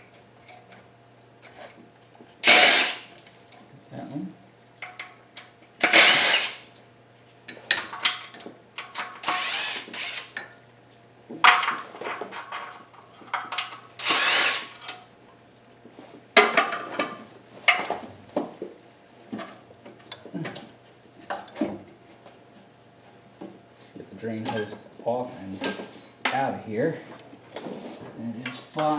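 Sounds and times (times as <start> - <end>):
handheld power tool bursts: 2.4 - 3.2, 5.8 - 6.7, 9.0 - 10.4, 14.0 - 15.0.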